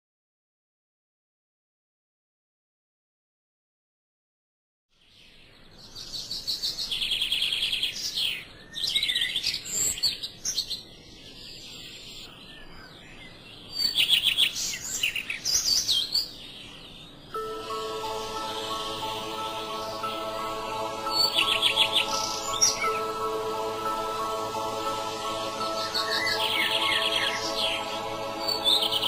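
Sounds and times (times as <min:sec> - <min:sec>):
songbirds trilling and chirping: 0:05.0 - 0:29.0.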